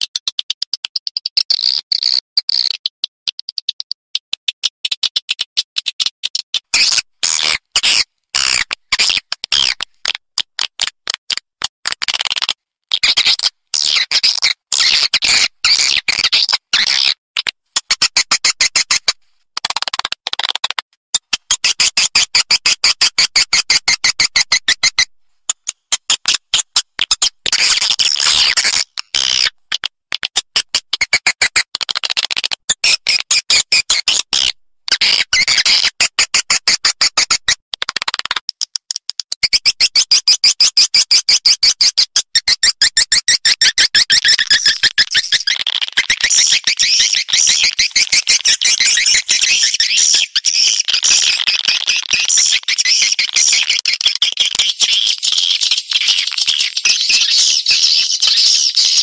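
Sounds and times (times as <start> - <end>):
swiftlet clicks and chirps: 0.0 - 12.6, 37.8 - 40.1, 42.7 - 59.0.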